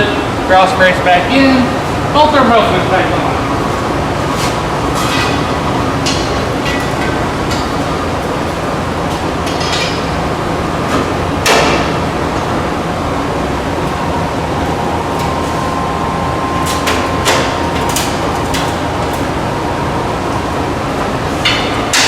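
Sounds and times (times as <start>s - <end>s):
steady background hum: 0.0s - 22.0s
metal tools clanking: 9.4s - 10.2s.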